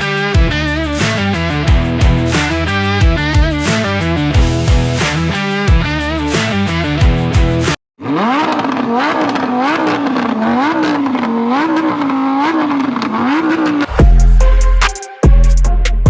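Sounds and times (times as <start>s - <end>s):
music with heavy bass: 0.0s - 7.8s, 13.9s - 16.0s
car engine revving: 0.0s - 14.8s.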